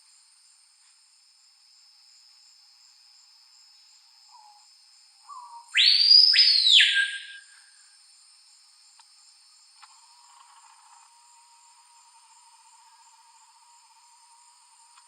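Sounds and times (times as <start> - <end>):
high insect buzz: 0.0 - 15.0
bird song: 4.3 - 7.6.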